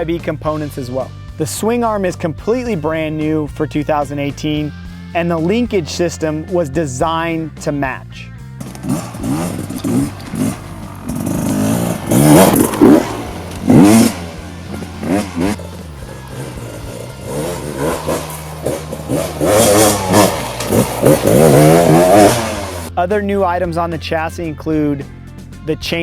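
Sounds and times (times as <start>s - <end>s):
dirt bike engine revving: 8.6s - 22.9s.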